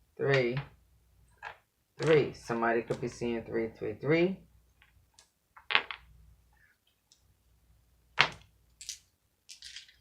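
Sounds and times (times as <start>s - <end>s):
dice clacking: 1.4s - 3.1s, 4.8s - 6.1s, 8.2s - 10.0s
dice rattling while shaken: 8.3s - 10.0s.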